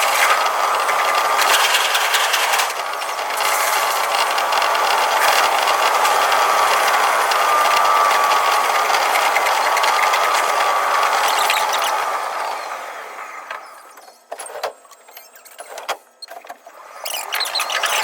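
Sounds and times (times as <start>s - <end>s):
train clicks and rattles on rails: 0.2s - 6.2s.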